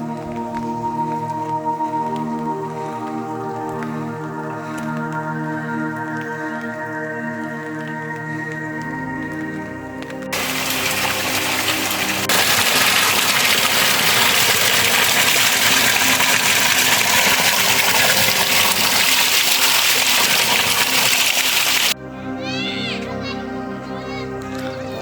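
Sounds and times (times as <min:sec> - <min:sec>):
heavy rain pouring: 0:10.3 - 0:22.0.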